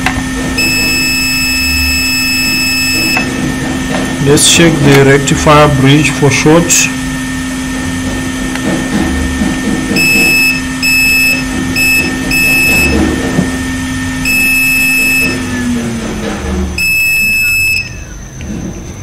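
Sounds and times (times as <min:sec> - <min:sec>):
low hum: 0:00.4 - 0:03.8, 0:09.9 - 0:18.7
multimeter buzzer beeping: 0:00.6 - 0:03.4, 0:10.0 - 0:13.1, 0:14.2 - 0:15.6, 0:16.8 - 0:18.2.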